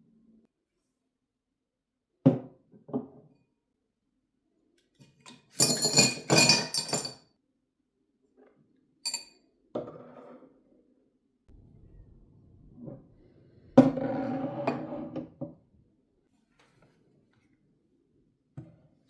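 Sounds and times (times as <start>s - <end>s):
objects clattering and clinking: 5.3s - 7.2s.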